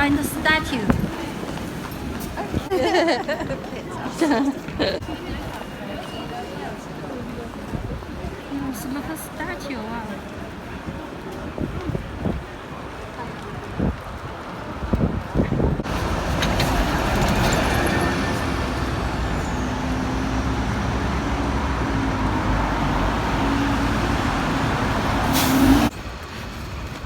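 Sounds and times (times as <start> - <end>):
traffic noise: 0.0 - 27.0
vehicle engine humming: 15.8 - 26.3.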